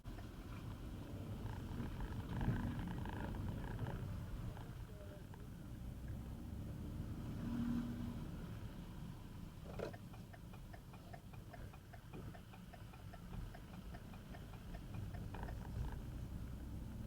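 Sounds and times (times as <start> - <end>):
car driving rumble: 0.0 - 17.0
rapid even ticking: 9.7 - 16.6.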